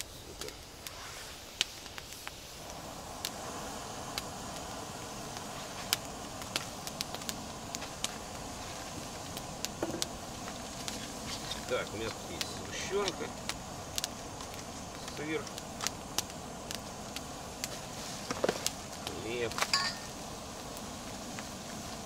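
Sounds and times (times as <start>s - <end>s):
gas stove burner hissing: 0.0s - 22.0s
wood fire crackling: 0.0s - 22.0s.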